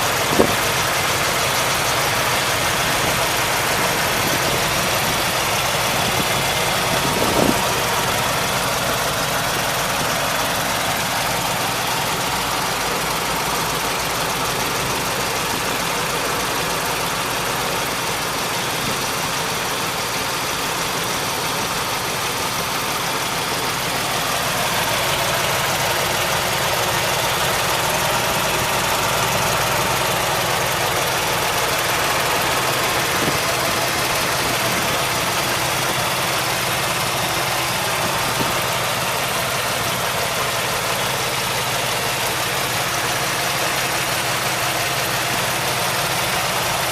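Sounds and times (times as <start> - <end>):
truck engine idling: 0.0 - 46.9.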